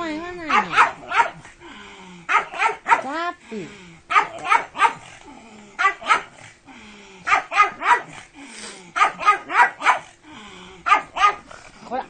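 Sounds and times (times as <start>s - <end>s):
dog barking: 0.4s - 1.4s, 2.3s - 3.2s, 4.1s - 5.1s, 5.8s - 6.4s, 7.3s - 8.2s, 9.0s - 10.1s, 10.8s - 11.5s.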